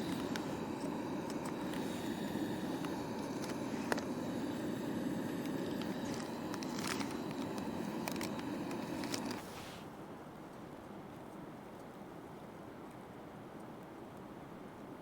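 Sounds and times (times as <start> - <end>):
gas stove burner hissing: 0.0 - 9.9.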